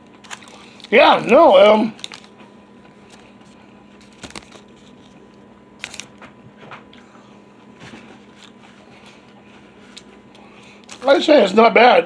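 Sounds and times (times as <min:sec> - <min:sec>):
person chewing crunchy food: 0:00.1 - 0:06.2, 0:08.2 - 0:11.0.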